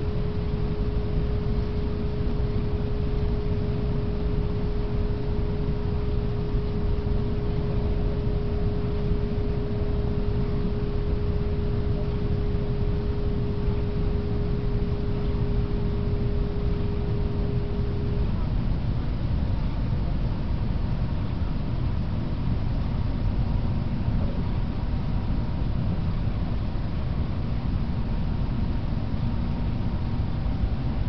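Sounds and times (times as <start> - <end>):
single-pitched hum: 0.0 - 20.7.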